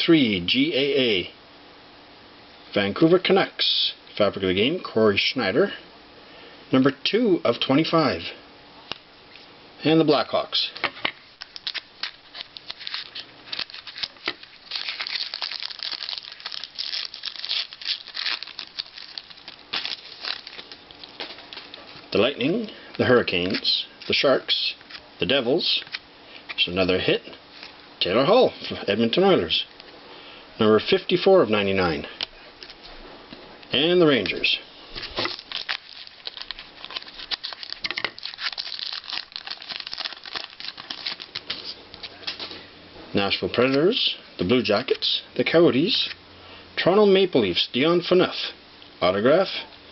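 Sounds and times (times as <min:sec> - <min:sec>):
wrapper tearing and crinkling: 0:11.4 - 0:21.8, 0:34.9 - 0:42.4.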